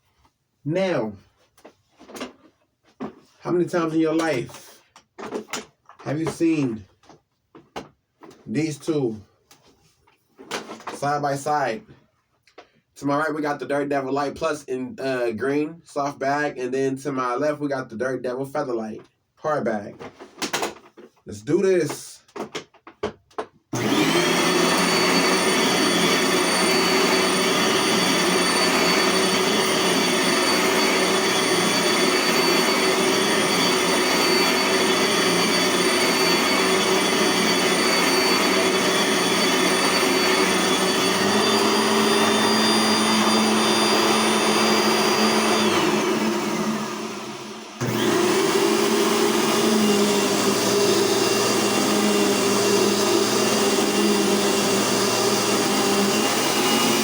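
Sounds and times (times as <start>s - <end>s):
vacuum cleaner motor whining: 23.7s - 57.0s.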